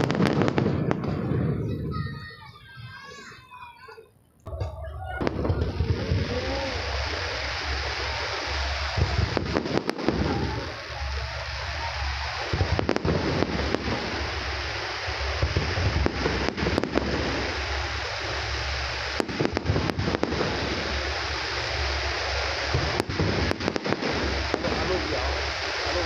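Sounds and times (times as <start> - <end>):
fireworks bangs and crackles: 0.0 - 26.0
steady rushing noise: 5.3 - 26.0.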